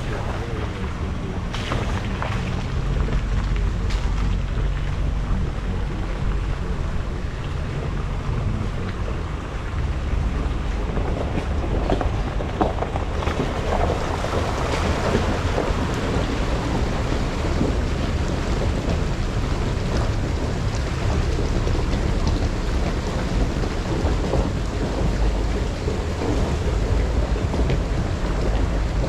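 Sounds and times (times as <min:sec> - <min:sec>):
vehicle driving rumble: 0:00.0 - 0:29.0.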